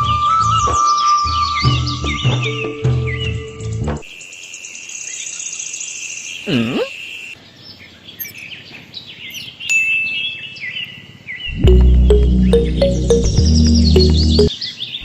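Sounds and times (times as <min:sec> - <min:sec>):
birds chirping and calling: 0:05.0 - 0:15.0.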